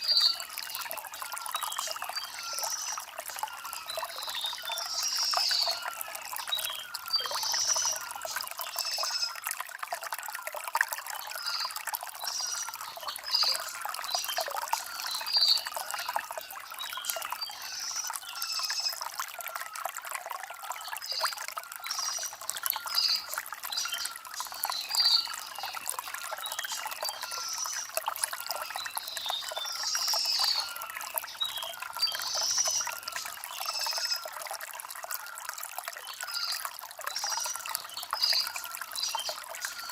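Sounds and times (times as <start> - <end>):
small birds chirping: 0.0 - 9.4, 20.8 - 34.3
stream gurgling over stones: 0.0 - 39.9.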